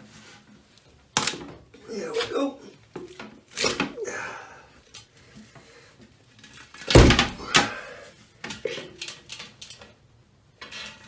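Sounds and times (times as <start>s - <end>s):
toilet thudding on concrete floor: 6.9s - 7.8s.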